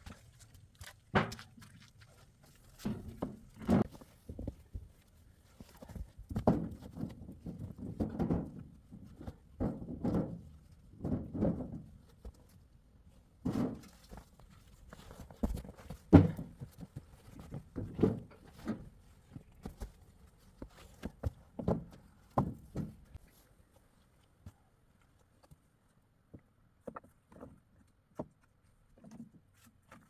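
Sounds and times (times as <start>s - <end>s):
irregular thuds and knocks: 1.1s - 1.6s, 2.7s - 12.5s, 13.4s - 23.2s.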